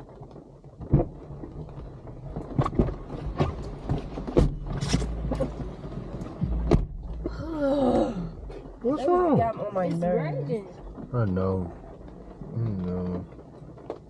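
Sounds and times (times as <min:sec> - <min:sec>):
low rumble: 0:00.0 - 0:13.9
person groaning: 0:07.4 - 0:08.4.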